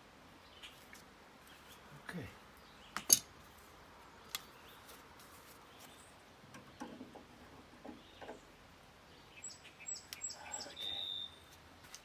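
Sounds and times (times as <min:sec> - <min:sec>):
high short bird chirps: 0:09.4 - 0:11.5.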